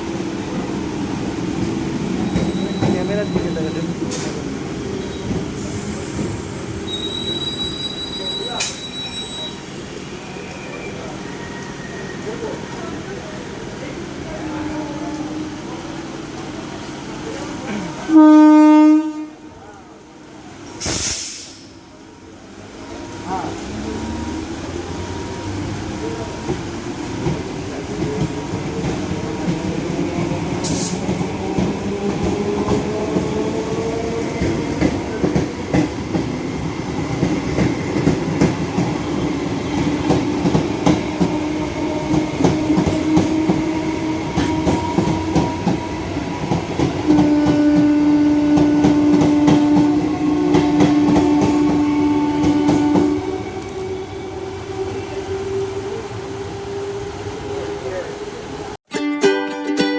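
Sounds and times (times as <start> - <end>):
electric train whine: 21.8 - 58.8
wheels clacking over rail joints: 26.0 - 54.8.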